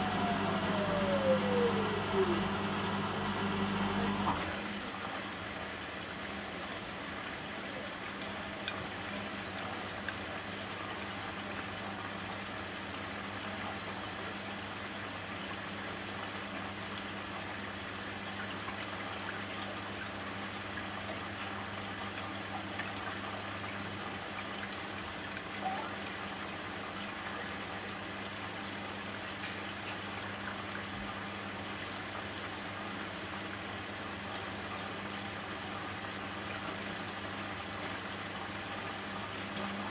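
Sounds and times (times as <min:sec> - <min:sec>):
washing machine low hum: 0:00.0 - 0:39.9
washing machine water sloshing: 0:04.2 - 0:39.9.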